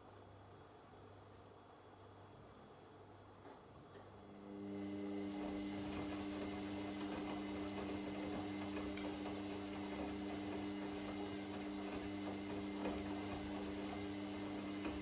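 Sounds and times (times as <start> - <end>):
washing machine running: 4.2 - 15.0.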